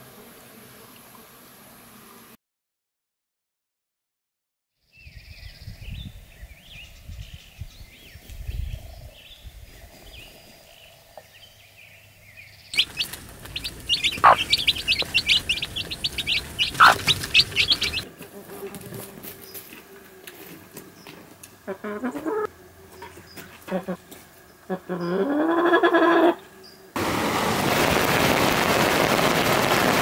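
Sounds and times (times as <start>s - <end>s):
songbirds singing: 4.8s - 18.0s, 20.9s - 25.3s
wind rumbling on microphone: 5.0s - 10.9s, 12.8s - 18.0s
sharp falling bird calls: 12.7s - 18.0s.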